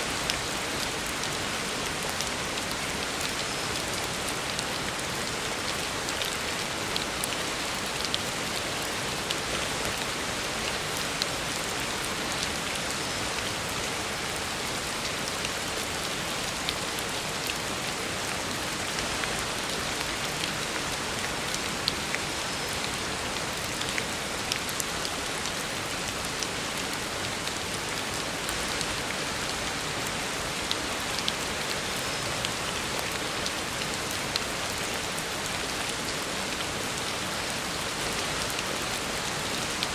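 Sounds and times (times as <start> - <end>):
heavy rain on a road: 0.0 - 39.9.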